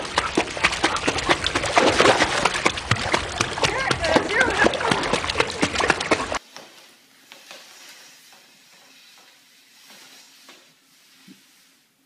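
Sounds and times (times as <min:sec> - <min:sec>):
cloth rustling on tile floor: 0:06.4 - 0:12.0.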